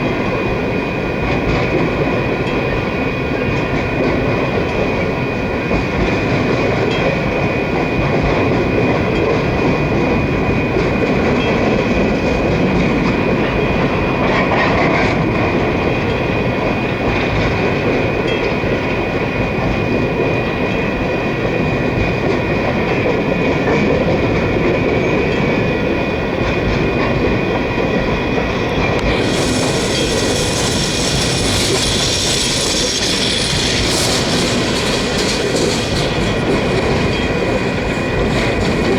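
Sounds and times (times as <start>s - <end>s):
train wheels on rail: 0.0s - 38.9s
harsh high-pitched hiss: 29.0s - 38.9s.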